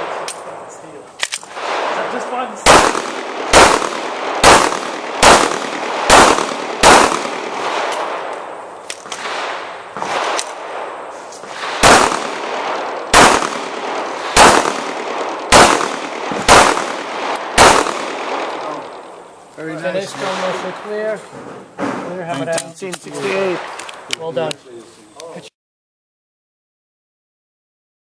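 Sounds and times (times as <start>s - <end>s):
pistol shots: 1.2s - 19.0s.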